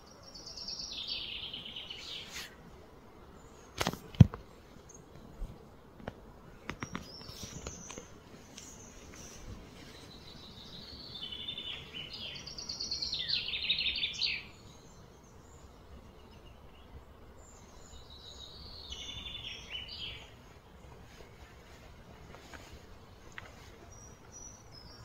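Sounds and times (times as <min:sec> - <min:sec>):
bird singing trills: 0:00.0 - 0:02.3, 0:06.8 - 0:20.5, 0:23.1 - 0:25.0.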